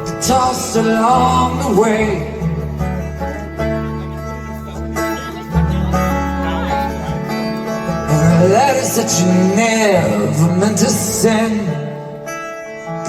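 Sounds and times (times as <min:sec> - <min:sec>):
steady bass: 0:00.0 - 0:11.8
guitars ringing: 0:00.0 - 0:13.0.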